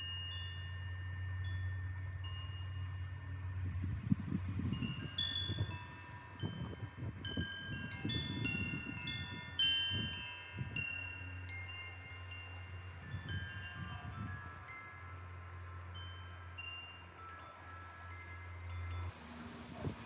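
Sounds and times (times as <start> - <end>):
wind chimes ringing: 0.0 - 20.0
wind rumbling on microphone: 3.3 - 11.1, 12.8 - 15.0, 19.1 - 20.0.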